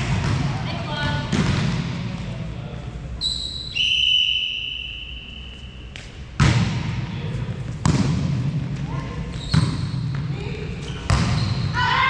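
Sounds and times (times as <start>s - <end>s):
referee's whistle blast: 3.2s - 5.5s.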